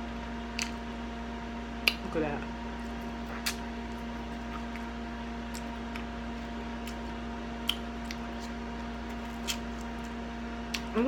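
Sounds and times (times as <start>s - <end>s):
steady electrical hum: 0.0s - 11.0s
sticky clicks of eating ribs: 0.5s - 0.8s, 1.8s - 2.1s, 2.8s - 11.0s.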